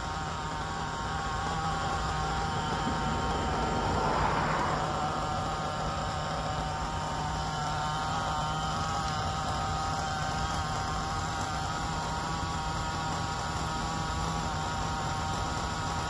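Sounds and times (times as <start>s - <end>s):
car engine running high: 0.0s - 9.7s.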